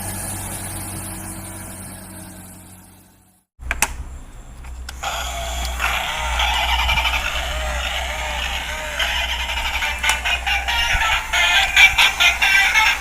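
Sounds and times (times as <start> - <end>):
electronic toy engine noise: 0.0 - 3.5, 4.9 - 13.0
toy click: 4.6 - 13.0.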